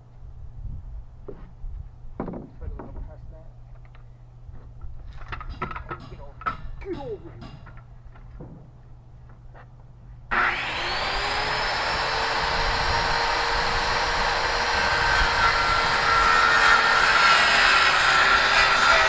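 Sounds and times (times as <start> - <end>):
circular saw cutting wood: 10.3 - 19.0.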